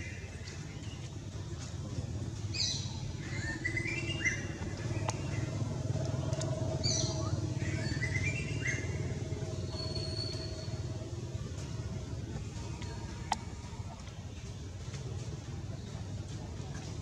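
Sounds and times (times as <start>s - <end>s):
songbird singing: 0.0s - 17.0s
steady low rumble: 0.0s - 17.0s.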